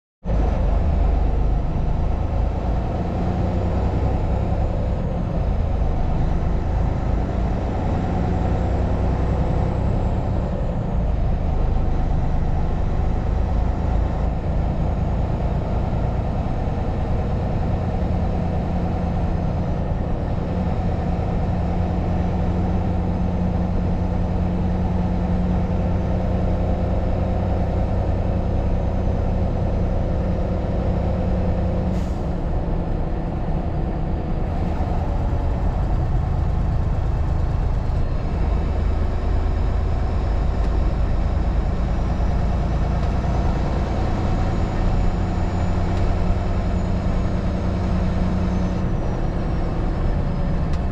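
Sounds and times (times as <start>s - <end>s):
truck engine drone: 0.2s - 50.9s.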